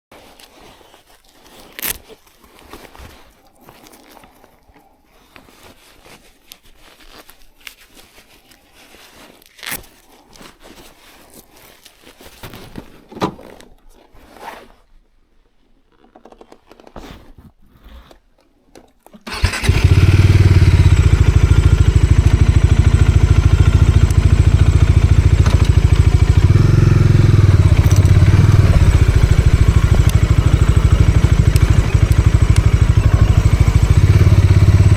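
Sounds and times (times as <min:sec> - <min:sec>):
motorcycle engine idling: 0:19.3 - 0:34.9.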